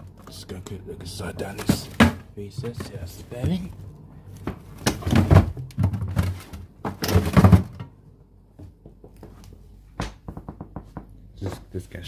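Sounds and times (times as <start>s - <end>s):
heavy thuds and clattering knocks: 4.5s - 8.0s.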